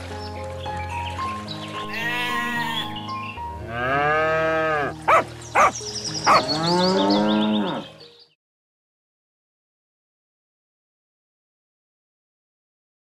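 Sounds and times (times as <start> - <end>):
faint background music: 0.0 - 8.3
cows mooing: 1.9 - 3.0, 3.6 - 7.9.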